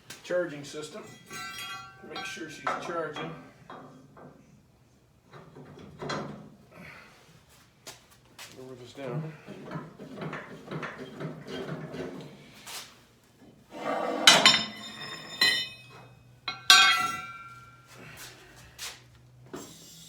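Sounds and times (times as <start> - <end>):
metal objects clanking: 0.9 - 3.9, 13.8 - 17.9.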